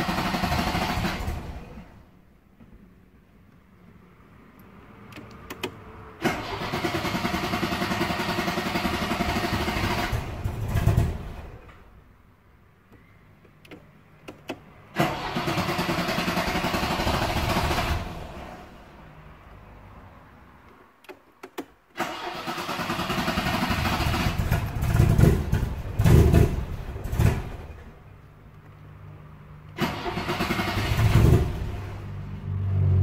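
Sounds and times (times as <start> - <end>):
car engine cranking on starter: 0.0 - 2.0, 5.1 - 11.8, 13.6 - 18.8, 21.0 - 28.0, 29.7 - 32.0
starter clicks: 4.5 - 5.8, 12.9 - 14.7, 20.6 - 22.0
loud low engine burst: 14.9 - 18.9, 29.8 - 32.3.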